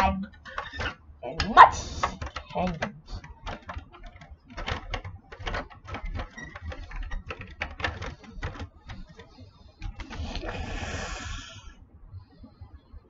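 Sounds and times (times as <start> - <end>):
plastic bricks clicking and clattering: 0.0 - 11.4.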